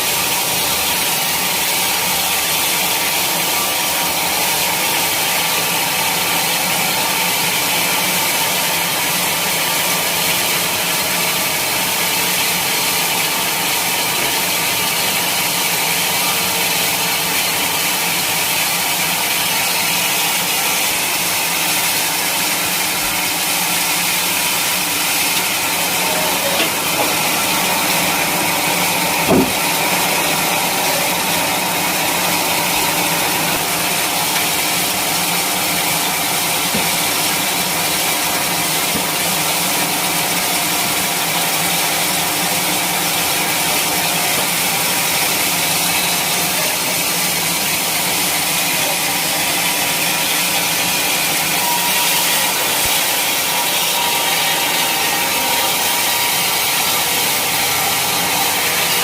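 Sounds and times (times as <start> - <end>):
sawmill engine running: 0.0 - 59.0
sharp knock: 29.3 - 29.7.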